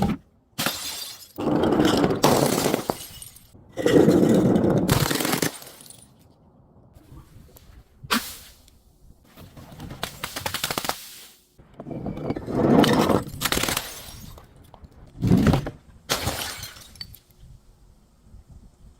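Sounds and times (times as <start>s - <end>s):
glass bottle breaking and crunching: 0.6s - 6.2s, 16.1s - 17.2s.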